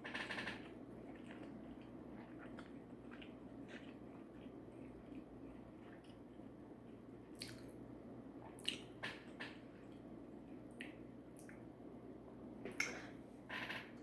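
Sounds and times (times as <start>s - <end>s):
wet chewing: 0.1s - 7.7s
lip and mouth smacks: 7.4s - 7.7s.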